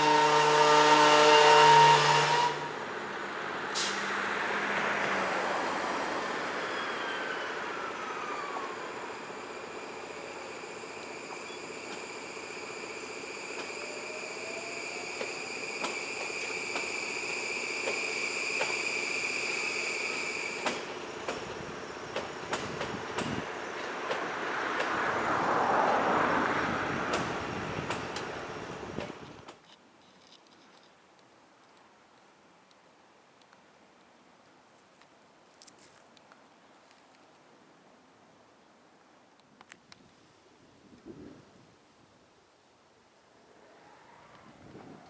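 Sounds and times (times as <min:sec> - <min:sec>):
high-pitched train squeal: 0:00.0 - 0:02.8, 0:05.4 - 0:29.4, 0:43.5 - 0:45.0
rumble of passing train cars: 0:00.0 - 0:29.6, 0:43.3 - 0:45.0
clicks over rail joints: 0:15.2 - 0:16.9.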